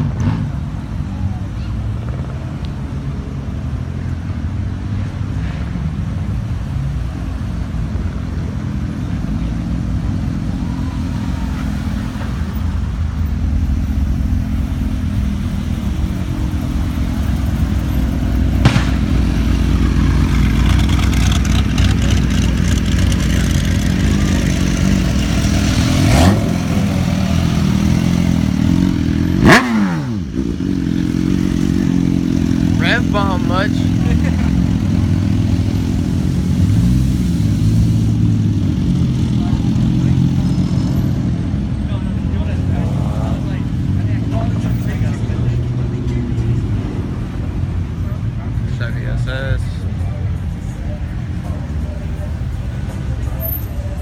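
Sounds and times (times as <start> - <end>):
car engines rumbling: 0.0 - 54.0
engine revving: 13.4 - 41.4.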